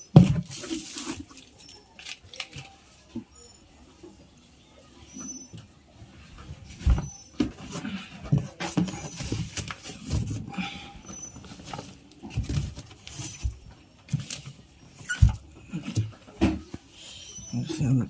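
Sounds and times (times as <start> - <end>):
packaging rustling: 0.4 - 2.8, 8.4 - 10.5.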